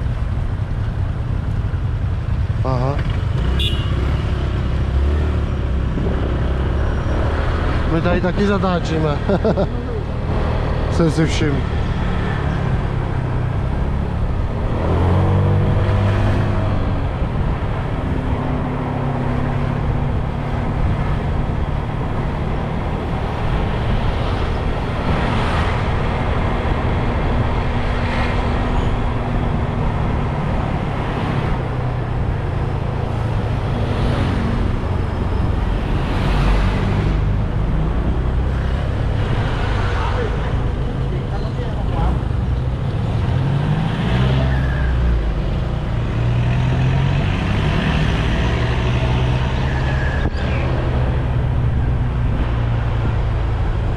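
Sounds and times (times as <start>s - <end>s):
road and traffic noise: 0.0s - 53.9s.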